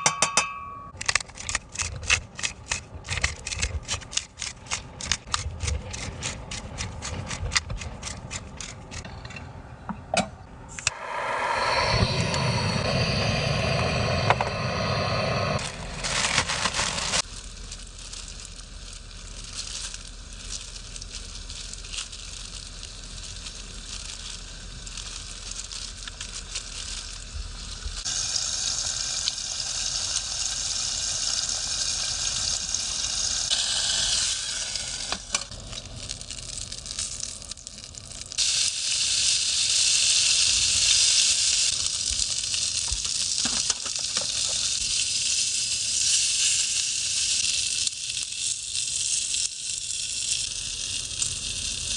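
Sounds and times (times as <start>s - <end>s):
food sizzling in a frying pan: 10.9s - 51.9s.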